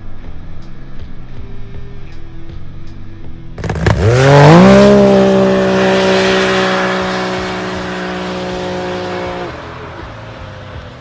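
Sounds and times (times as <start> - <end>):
engine revving: 3.6 - 11.0.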